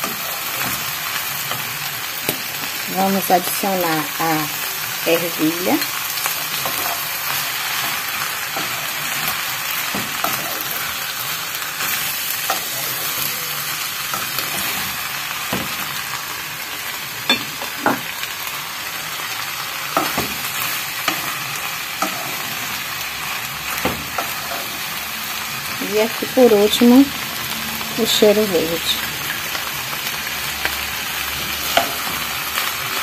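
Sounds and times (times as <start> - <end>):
food sizzling in a pan: 0.0 - 33.0
wooden spoon knocking a pan: 17.3 - 18.1.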